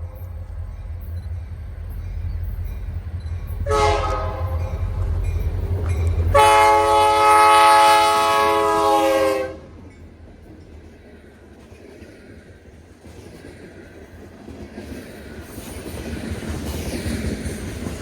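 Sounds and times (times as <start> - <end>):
locomotive air horn blasts: 3.6 - 4.8, 6.3 - 9.8.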